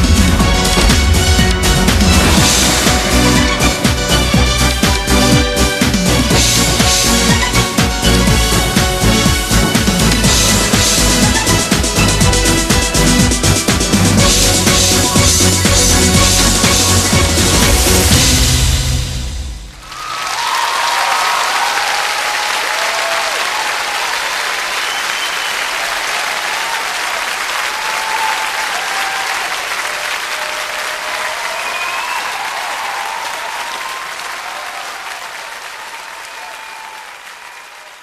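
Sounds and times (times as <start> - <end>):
audience applauding: 0.0 - 18.7, 19.7 - 38.0
music: 0.0 - 19.8
voices through clapping: 19.8 - 38.0.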